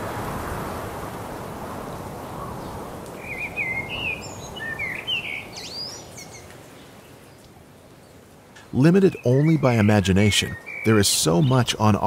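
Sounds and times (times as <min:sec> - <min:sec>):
songbird warbling chirps: 0:02.3 - 0:07.5, 0:08.6 - 0:12.0.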